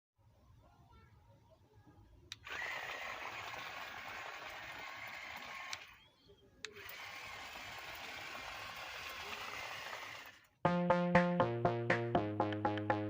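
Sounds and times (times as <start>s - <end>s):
small motor whining: 2.4s - 10.5s.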